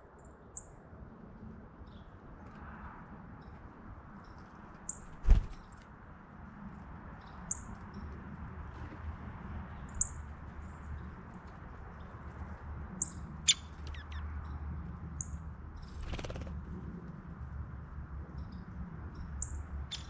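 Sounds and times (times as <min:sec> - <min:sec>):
birds chirping: 0:13.0 - 0:14.6, 0:19.4 - 0:20.0.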